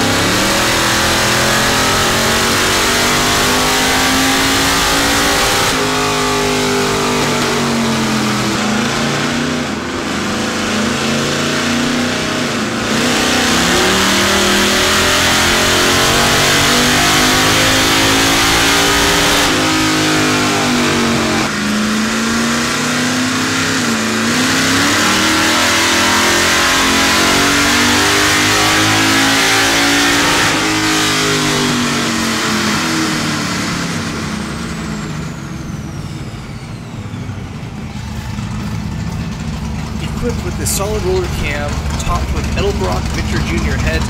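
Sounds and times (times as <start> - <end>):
engine revving on dyno: 0.0 - 39.4, 40.0 - 44.0
high whine of rollers: 34.2 - 43.8.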